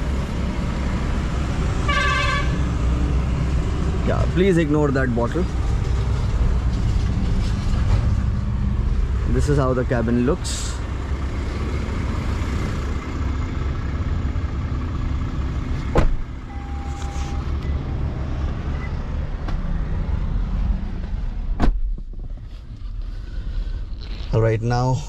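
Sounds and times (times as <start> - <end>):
diesel engine idling: 0.0 - 25.0
faint tone: 16.5 - 17.8.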